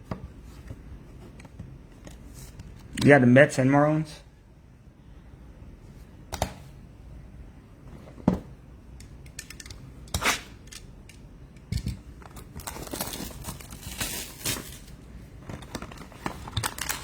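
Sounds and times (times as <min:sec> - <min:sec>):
wrapper crinkling: 0:12.5 - 0:15.0, 0:15.6 - 0:17.0.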